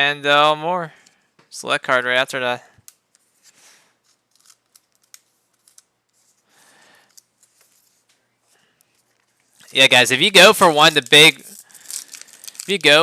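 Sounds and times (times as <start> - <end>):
trading cards flipped by hand: 2.8 - 8.2.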